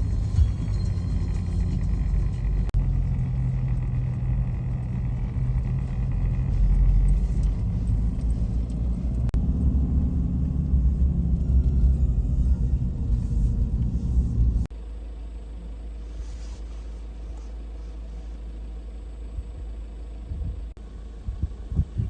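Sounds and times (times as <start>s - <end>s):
low rumble: 0.0s - 14.7s, 19.2s - 22.0s.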